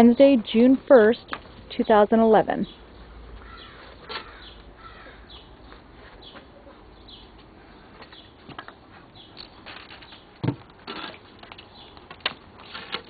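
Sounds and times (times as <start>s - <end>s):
birds chirping faintly: 0.0s - 10.5s, 11.3s - 12.9s.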